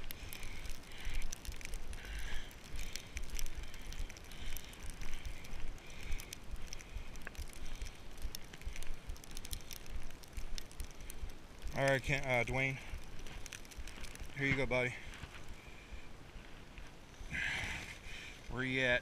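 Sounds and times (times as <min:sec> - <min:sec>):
footsteps crunching in snow: 0:11.8 - 0:17.0.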